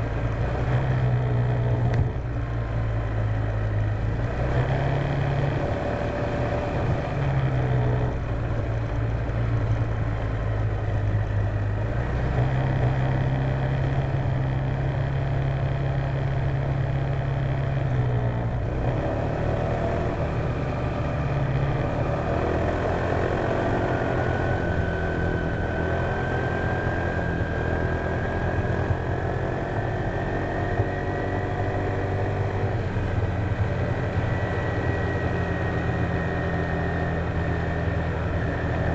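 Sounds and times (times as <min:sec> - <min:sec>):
wind and road rush: 0:00.0 - 0:38.9.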